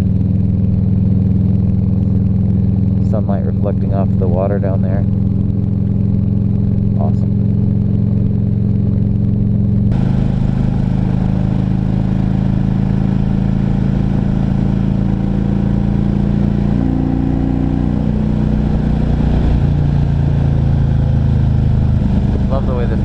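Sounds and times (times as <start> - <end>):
motorcycle engine running: 0.0 - 23.0
rushing wind noise: 18.7 - 23.0.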